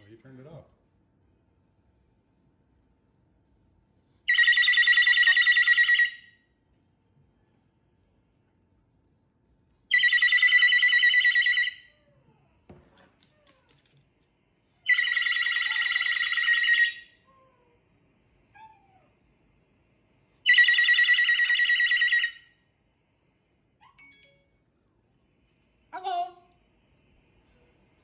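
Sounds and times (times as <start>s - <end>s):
phone ringtone trilling: 4.3s - 6.3s, 9.9s - 12.0s, 14.9s - 17.2s, 20.5s - 22.4s.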